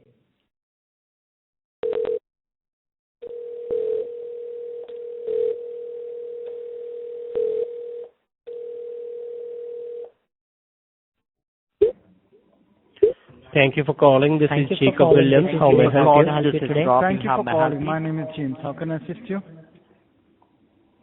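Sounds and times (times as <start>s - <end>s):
telephone dial tone: 1.8s - 2.2s, 3.2s - 10.2s.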